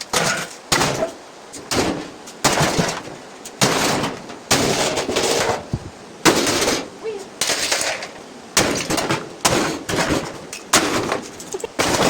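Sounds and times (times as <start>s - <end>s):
metal and plastic parts crashing: 6.3s - 12.0s.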